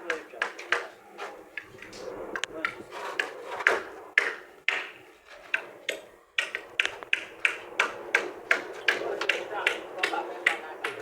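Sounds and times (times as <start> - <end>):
hammer striking nails into wood: 3.2 - 11.0.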